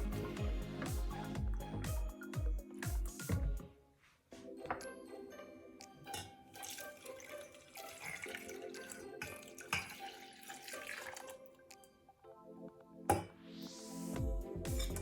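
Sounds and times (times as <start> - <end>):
background music: 0.0 - 15.0
liquid pouring: 6.5 - 11.6.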